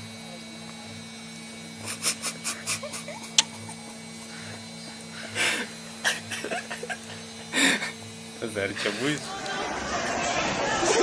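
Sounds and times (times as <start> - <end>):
electrical hum: 0.0 - 11.0
breathy bursts: 4.3 - 5.8, 7.5 - 8.0.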